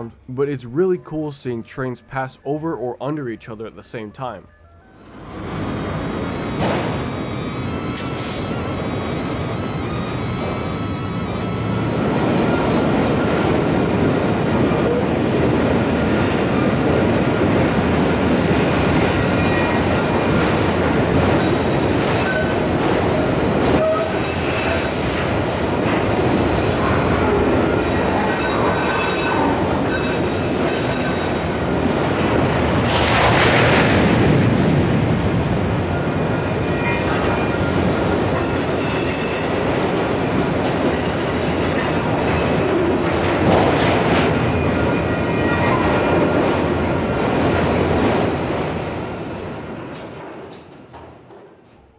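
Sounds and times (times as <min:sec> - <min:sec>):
high-pitched wheel squeals: 0:04.6 - 0:13.6, 0:19.2 - 0:20.7, 0:21.4 - 0:22.7, 0:23.7 - 0:25.3, 0:27.7 - 0:31.8, 0:36.4 - 0:39.9, 0:41.0 - 0:42.7
train wheels rumbling on rail: 0:05.0 - 0:51.9.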